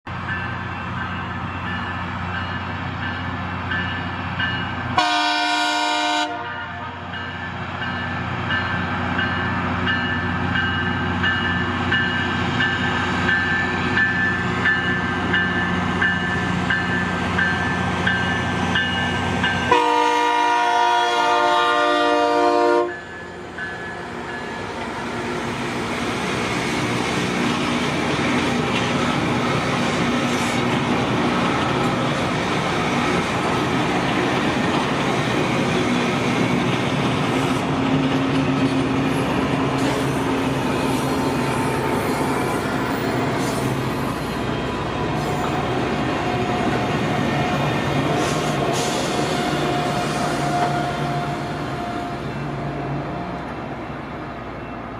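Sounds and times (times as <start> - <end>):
train engine and rail noise: 0.0 - 54.9
train horn blasts: 4.9 - 7.1, 19.6 - 23.1, 49.0 - 52.5.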